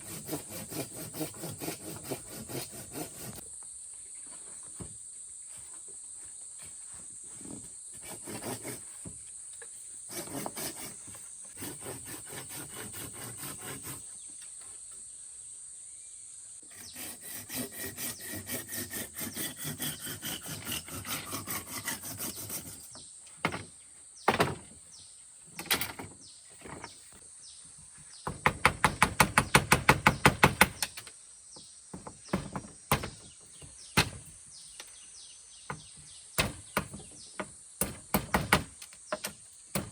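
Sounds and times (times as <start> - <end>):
hand tool working wood: 0.0 - 3.4, 6.6 - 14.8, 16.7 - 24.8.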